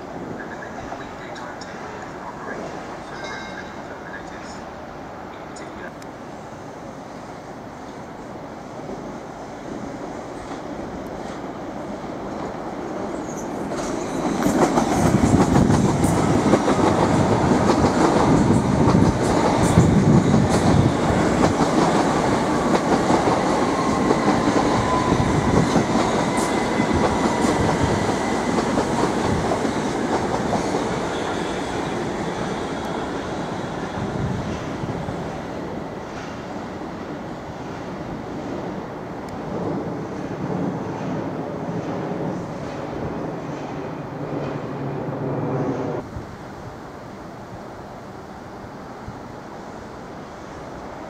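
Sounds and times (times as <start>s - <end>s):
train wheels clattering on track: 13.2s - 33.5s, 36.0s - 36.6s, 39.6s - 44.8s.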